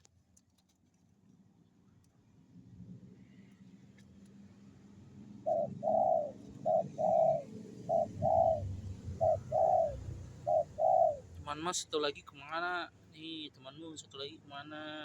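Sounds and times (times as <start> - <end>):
dove cooing: 5.4 - 11.4.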